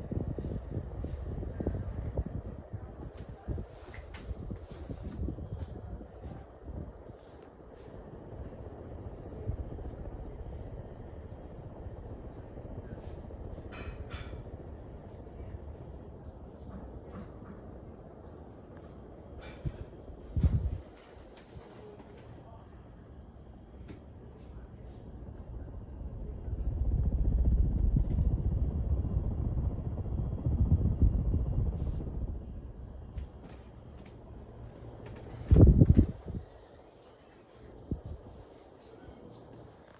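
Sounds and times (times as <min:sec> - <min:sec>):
ceiling fan running: 0:00.0 - 0:39.9.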